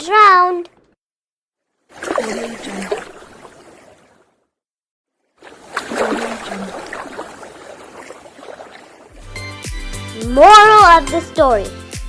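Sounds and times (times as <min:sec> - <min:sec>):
water splash: 0:01.8 - 0:04.4, 0:05.4 - 0:09.4.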